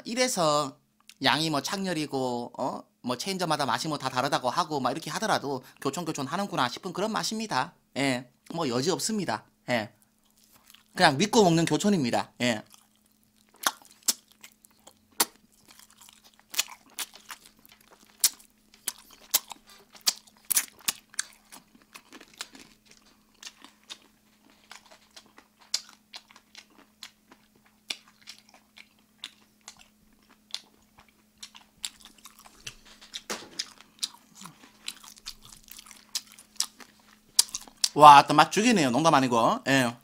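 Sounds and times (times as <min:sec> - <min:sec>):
faint low hum: 0:00.0 - 0:40.0
crunchy chewing and biting: 0:10.0 - 0:11.0, 0:12.4 - 0:38.0.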